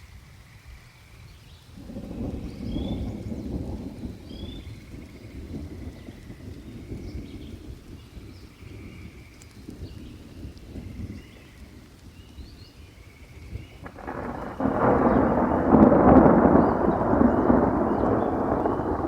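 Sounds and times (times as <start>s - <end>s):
rain: 0.0s - 19.0s
thunder crack and rolling peal: 1.8s - 7.9s, 13.8s - 19.0s
low thunder rumble: 1.8s - 19.0s.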